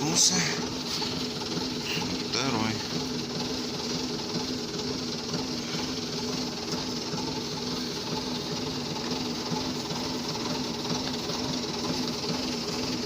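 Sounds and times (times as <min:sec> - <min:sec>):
loader engine idling: 0:00.0 - 0:13.0.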